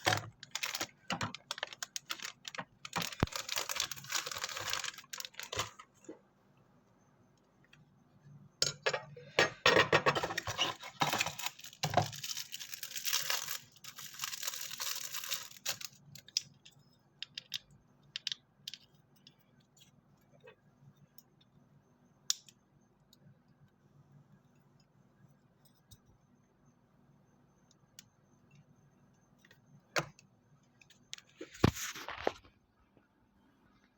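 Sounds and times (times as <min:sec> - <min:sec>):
packaging rustling and crinkling: 0:00.0 - 0:05.9, 0:10.3 - 0:16.4.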